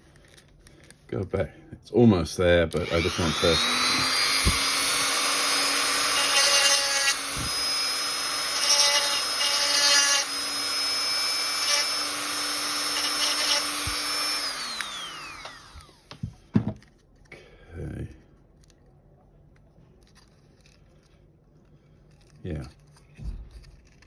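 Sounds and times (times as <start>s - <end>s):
drill bit grinding plastic: 2.7s - 16.2s
electric drill running: 2.8s - 16.2s.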